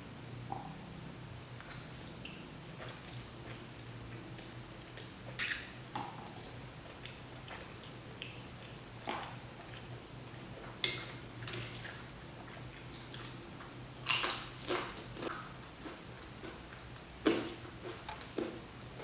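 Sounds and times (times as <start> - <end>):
biting and chewing food: 11.5 - 19.0.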